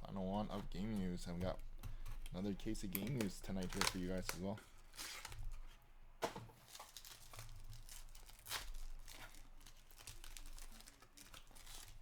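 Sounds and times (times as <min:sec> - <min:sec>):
wrapper tearing and crinkling: 0:03.2 - 0:05.6, 0:06.6 - 0:12.0.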